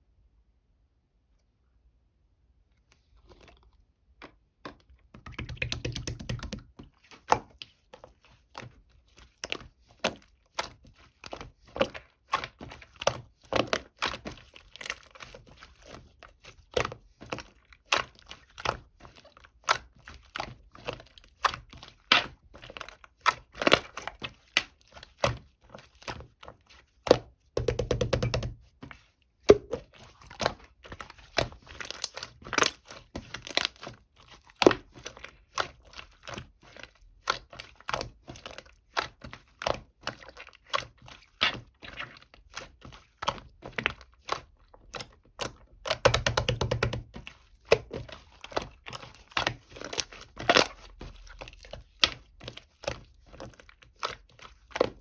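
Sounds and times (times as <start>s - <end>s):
objects tapping and clicking: 4.2s - 7.8s, 27.6s - 28.6s.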